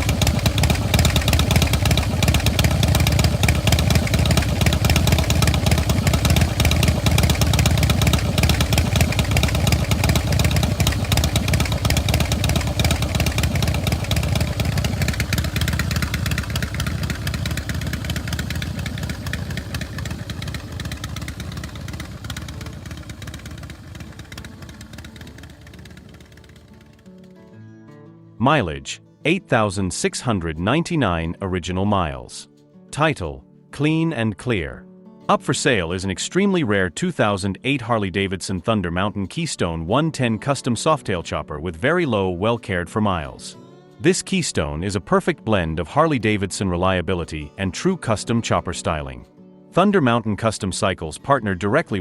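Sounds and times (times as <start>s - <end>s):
motorcycle engine idling: 0.0s - 27.3s.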